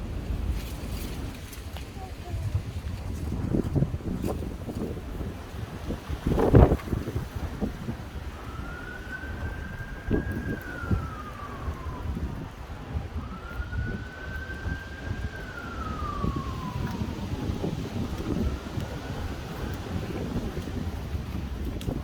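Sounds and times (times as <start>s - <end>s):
wind buffeting microphone: 0.0s - 22.0s
emergency siren wailing: 5.5s - 22.0s.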